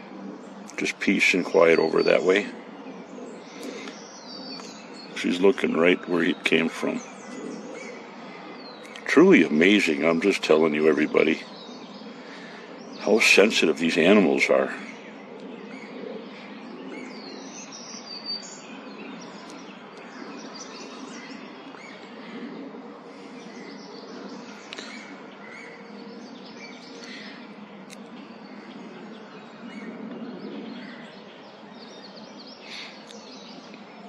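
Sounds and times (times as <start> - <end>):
small birds chirping: 0.0 - 34.0
steady low background noise: 0.0 - 34.0.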